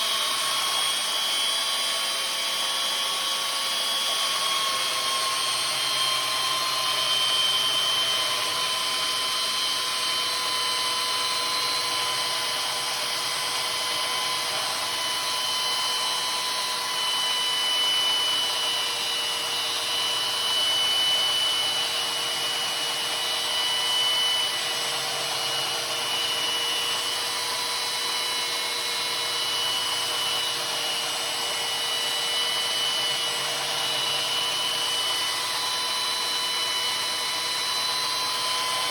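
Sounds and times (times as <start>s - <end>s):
power tool grinding: 0.0s - 38.9s.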